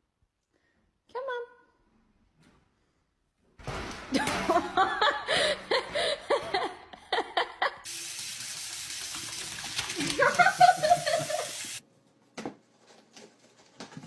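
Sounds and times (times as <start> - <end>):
water running into a sink: 7.9 - 11.8.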